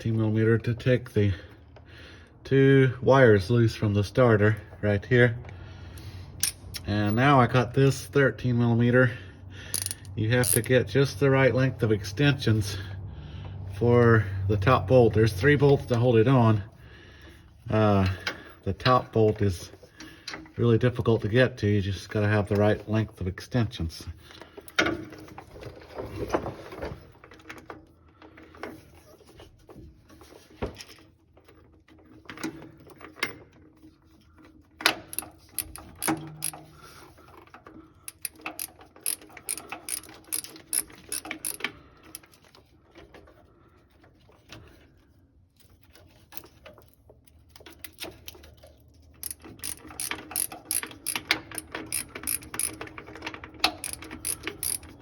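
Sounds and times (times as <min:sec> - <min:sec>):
socket ratchet clicking: 0:09.8 - 0:10.7, 0:35.1 - 0:36.7, 0:38.1 - 0:42.2, 0:49.2 - 0:53.0, 0:53.6 - 0:55.0.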